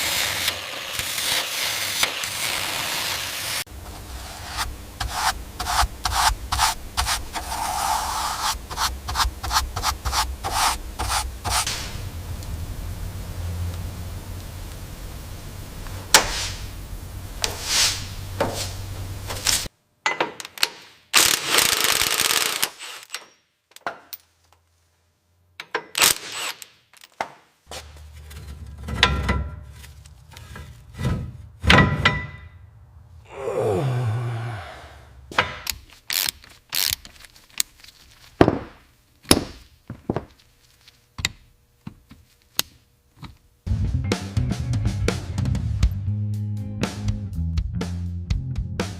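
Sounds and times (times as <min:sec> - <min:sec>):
low hum: 0:11.7 - 0:17.4.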